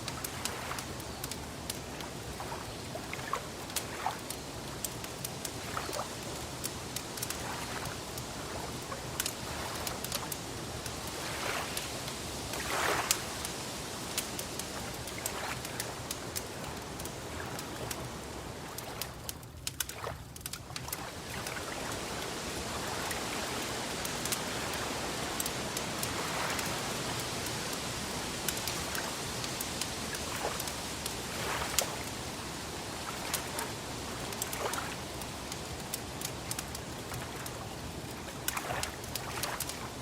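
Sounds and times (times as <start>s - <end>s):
wood fire crackling: 0.0s - 40.0s
fire pops and snaps: 18.8s - 21.6s.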